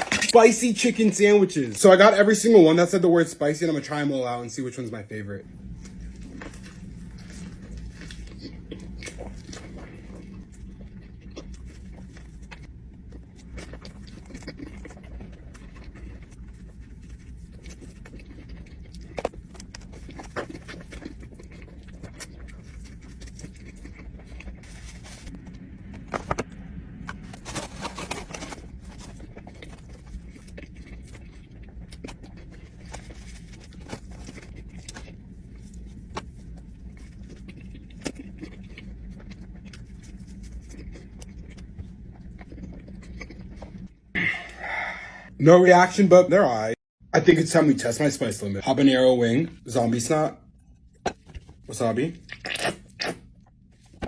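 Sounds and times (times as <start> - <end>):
steady low hum: 0.0 - 54.0
paper rustling: 27.1 - 29.8.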